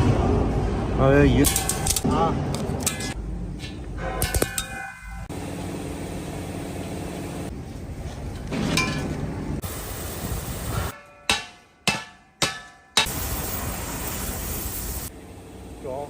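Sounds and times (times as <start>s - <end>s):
steady mechanical noise: 0.0s - 8.6s
hammer striking steel: 1.4s - 5.3s, 10.8s - 13.3s.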